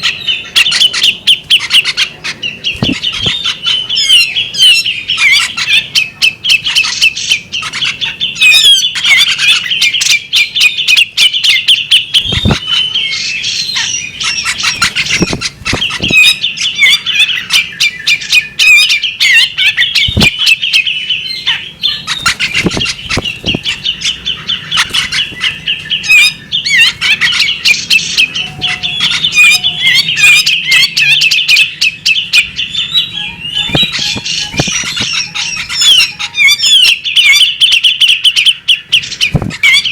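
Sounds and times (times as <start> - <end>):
bird chirping and clicking: 0.1 - 39.9
low thumps: 14.8 - 16.2.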